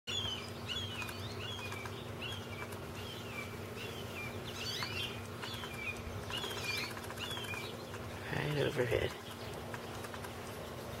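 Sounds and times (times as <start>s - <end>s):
bird chirping: 0.1s - 11.0s.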